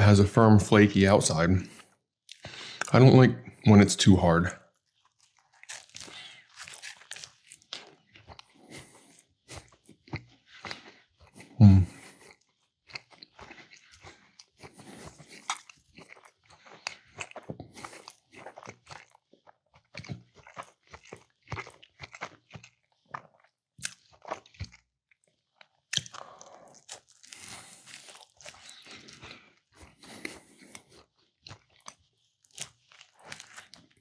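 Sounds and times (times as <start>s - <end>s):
chewing crunchy bread roll: 1.0s - 34.0s
crunchy mouth clicks: 15.4s - 15.7s.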